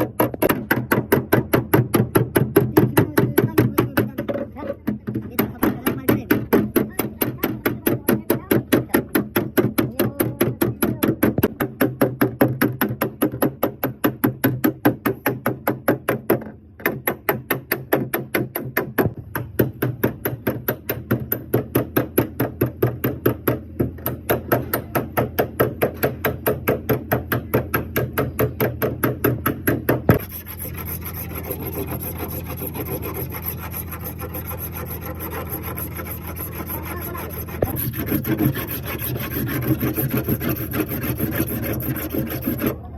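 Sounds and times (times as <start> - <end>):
rubbing strokes: 30.1 - 42.8.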